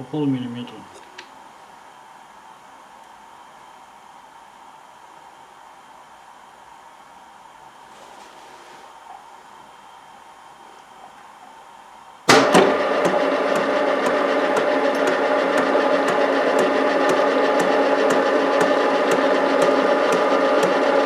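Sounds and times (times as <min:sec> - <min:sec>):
lathe motor humming: 0:12.3 - 0:21.0
lathe starting: 0:12.3 - 0:21.0
regular ticking: 0:12.4 - 0:21.0.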